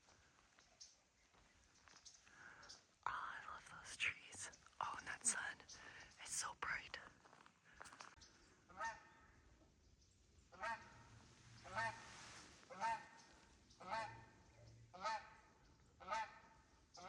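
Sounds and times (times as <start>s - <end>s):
geese honking: 10.5s - 12.1s, 12.7s - 14.3s, 14.9s - 17.0s.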